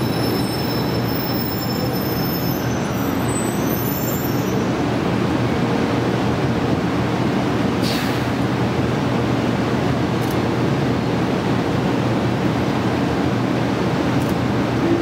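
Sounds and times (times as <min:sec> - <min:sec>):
train equipment rushing and humming: 0:00.0 - 0:15.0.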